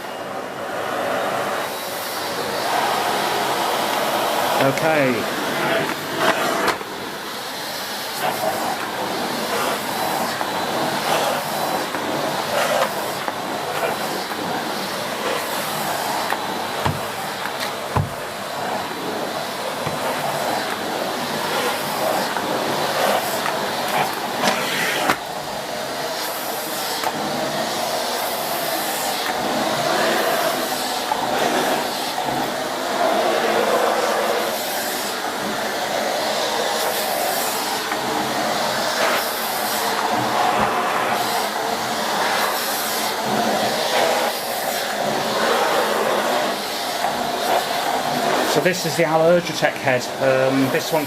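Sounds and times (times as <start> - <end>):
vacuum cleaner running: 0.0 - 51.0
floor head knocks: 17.9 - 18.2.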